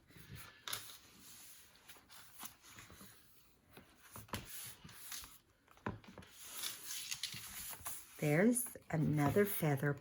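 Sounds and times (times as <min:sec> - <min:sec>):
paper rustling: 0:00.1 - 0:09.7.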